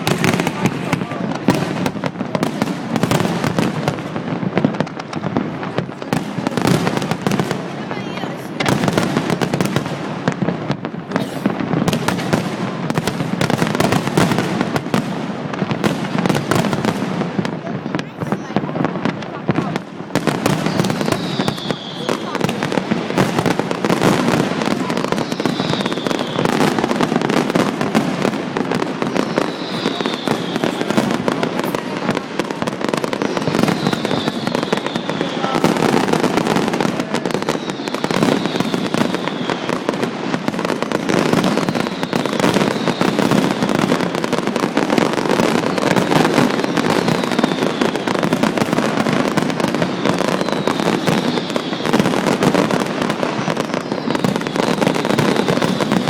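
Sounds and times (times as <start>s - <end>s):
fireworks bangs and crackling: 0.0s - 56.0s
falling firework whistle: 20.2s - 22.8s, 23.4s - 40.0s, 40.7s - 56.0s.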